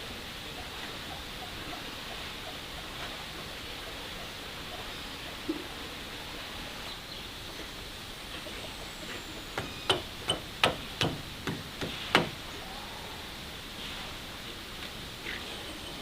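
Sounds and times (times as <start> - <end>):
sharp knocks: 9.6 - 12.4.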